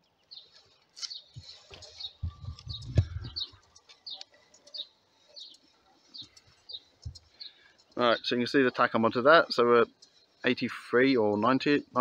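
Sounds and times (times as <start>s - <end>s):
high bird chirps: 0.0s - 8.5s.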